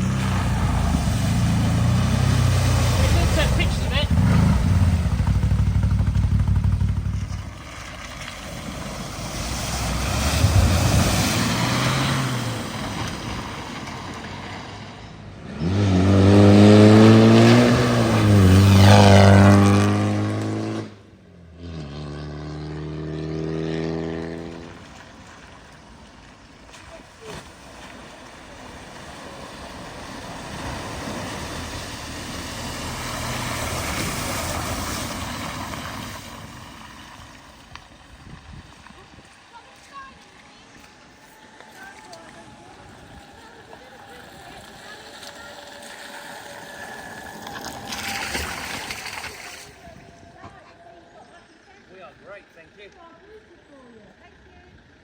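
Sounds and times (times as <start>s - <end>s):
car engine revving: 0.0s - 24.9s, 28.4s - 37.8s, 42.5s - 50.0s
car engine passing: 0.0s - 50.5s.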